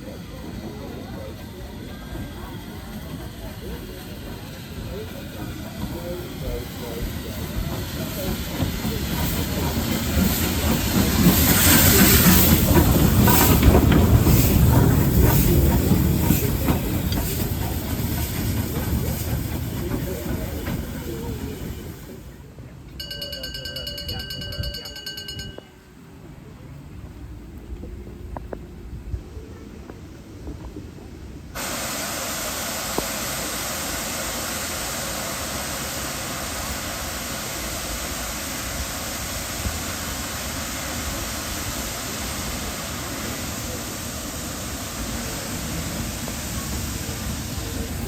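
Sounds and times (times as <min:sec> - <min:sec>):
train rumbling past: 0:00.0 - 0:48.0
burst of hiss: 0:02.2 - 0:22.2, 0:31.6 - 0:48.0.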